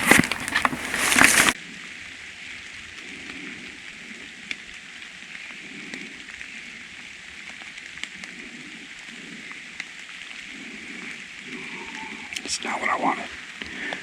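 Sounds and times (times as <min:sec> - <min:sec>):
footsteps through wet leaves: 0:00.0 - 0:01.6
rain pattering on woods: 0:00.0 - 0:14.0.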